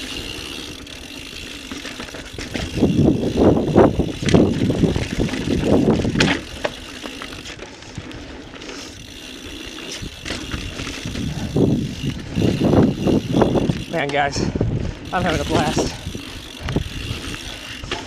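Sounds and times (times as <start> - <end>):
bike tyre rumble on dirt: 0.0 - 18.0.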